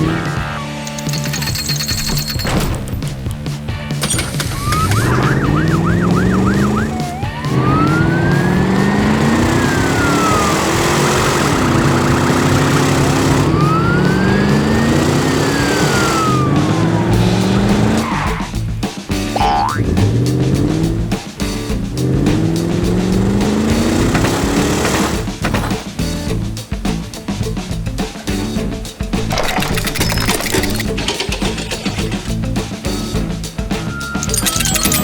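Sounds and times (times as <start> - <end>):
engine revving: 0.0 - 2.1, 4.0 - 18.7, 19.4 - 25.5
siren yelp and wail: 4.6 - 10.8, 13.4 - 16.8.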